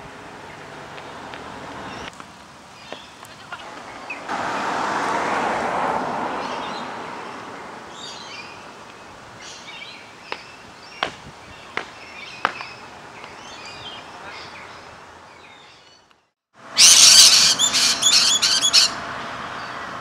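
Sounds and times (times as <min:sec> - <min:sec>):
small birds chirping: 0:00.5 - 0:04.3, 0:16.8 - 0:19.0.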